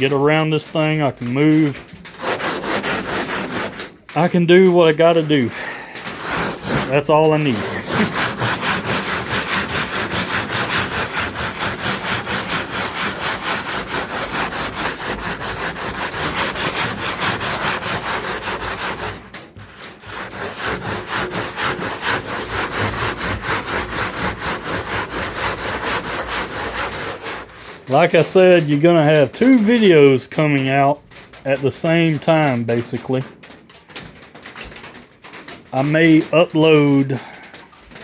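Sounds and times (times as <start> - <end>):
sandpaper rubbing strokes: 0.3 - 29.8.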